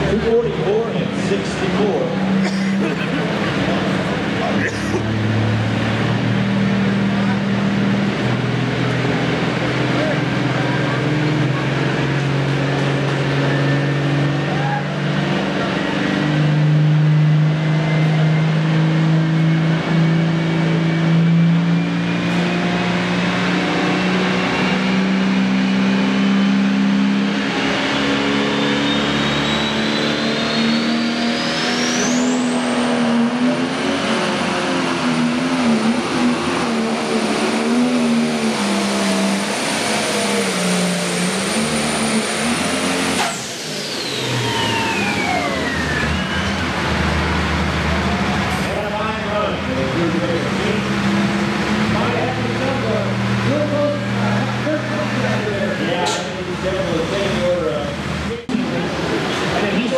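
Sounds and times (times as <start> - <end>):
diesel engine under full load: 0.0 - 59.9
turbo whine: 35.0 - 49.7.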